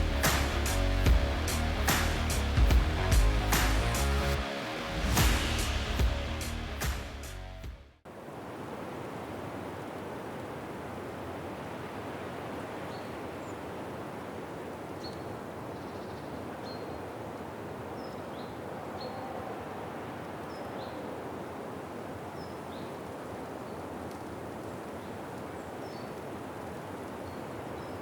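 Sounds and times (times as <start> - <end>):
steady rushing noise: 0.0 - 9.4.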